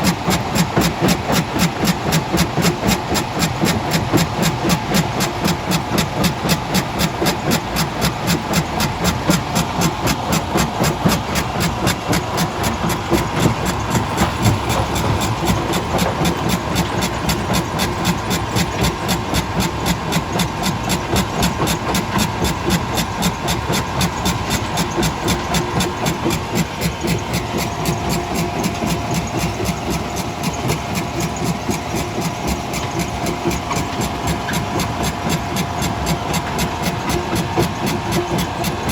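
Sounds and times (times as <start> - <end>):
faint steady machine whine: 0.0 - 38.9
crushing machinery pulsing: 8.2 - 20.1.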